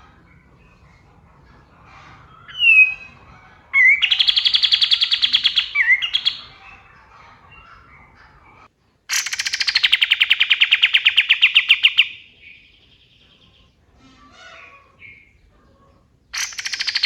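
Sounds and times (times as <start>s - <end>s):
faint bird chirps: 0.0s - 17.0s
songbird whistle and trill: 2.5s - 3.2s, 3.8s - 6.6s, 16.4s - 17.0s.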